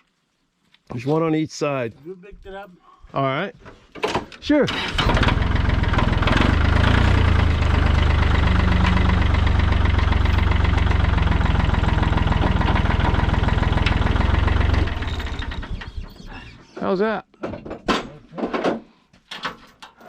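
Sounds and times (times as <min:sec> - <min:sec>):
tractor engine running: 0:04.7 - 0:16.4.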